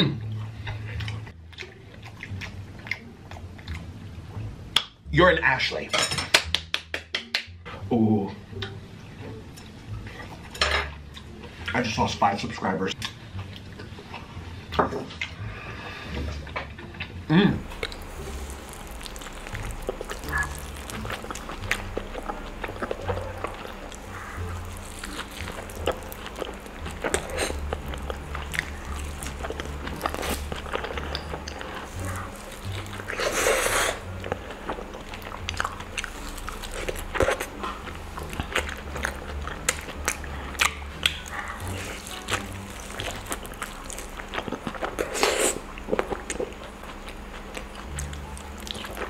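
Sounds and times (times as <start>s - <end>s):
wet chewing and smacking: 0.2s - 5.0s, 16.4s - 49.0s
mouth clicks and crunches: 17.6s - 49.0s.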